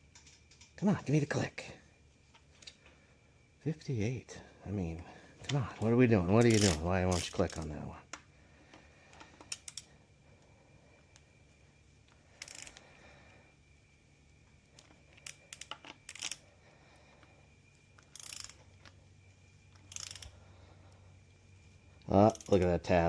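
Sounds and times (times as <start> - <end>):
metallic clicks of hand tools: 6.4 - 7.6, 9.1 - 9.9, 22.3 - 22.7
torque wrench ratcheting: 6.4 - 7.6, 9.5 - 9.9, 12.4 - 12.8, 15.2 - 16.4, 18.0 - 18.6, 19.8 - 20.3, 22.2 - 22.6.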